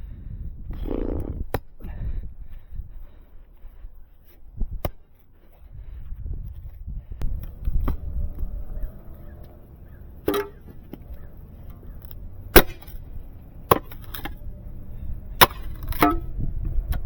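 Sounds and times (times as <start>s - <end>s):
pick axe chopping frozen ground: 10.2s - 11.1s, 12.5s - 14.4s, 15.4s - 16.3s.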